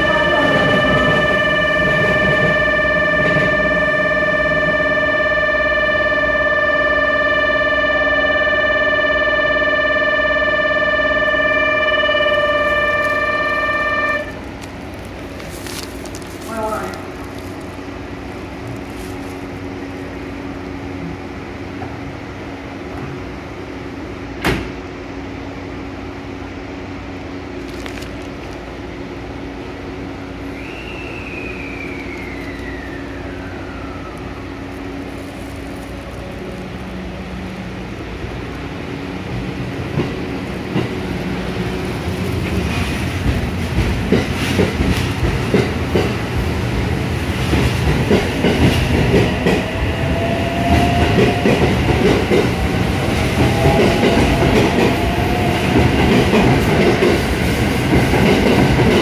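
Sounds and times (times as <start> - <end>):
electric train humming: 0.0 - 59.0
train pulling away rumbling: 0.0 - 59.0
falling whistle-like tone: 30.5 - 34.6
wheels clacking over rail joints: 39.8 - 49.7.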